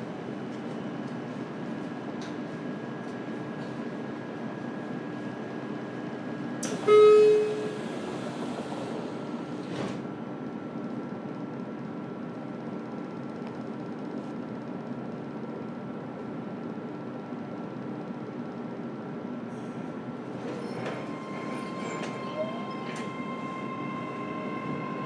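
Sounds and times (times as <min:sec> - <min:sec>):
train car running noise: 0:00.0 - 0:14.7, 0:18.4 - 0:25.0
train horn toot: 0:06.8 - 0:07.8.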